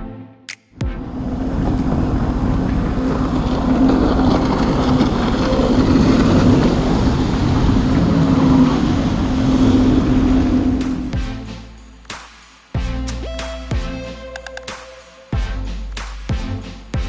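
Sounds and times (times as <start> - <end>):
wind buffeting microphone: 1.1 - 11.1.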